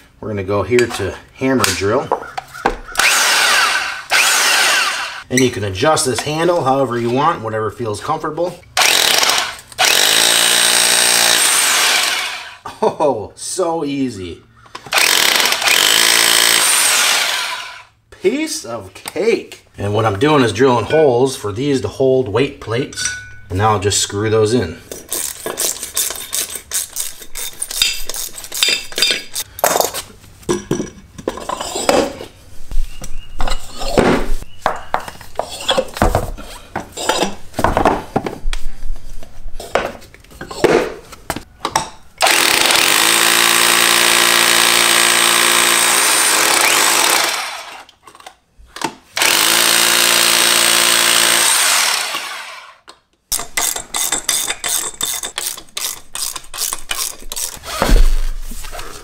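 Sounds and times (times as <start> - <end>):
electric drill running: 3.0 - 5.2, 8.8 - 12.6, 14.9 - 17.9, 42.2 - 47.9, 49.2 - 52.8.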